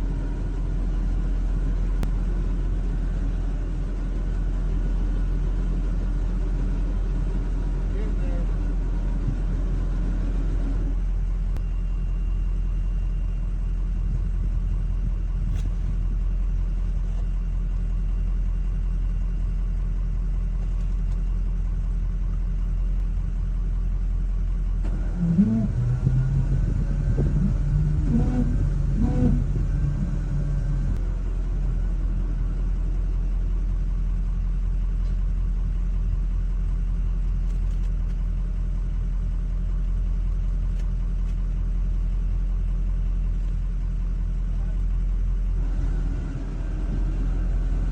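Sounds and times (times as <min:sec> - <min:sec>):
vehicle engine revving: 0:24.8 - 0:31.3, 0:45.5 - 0:47.9.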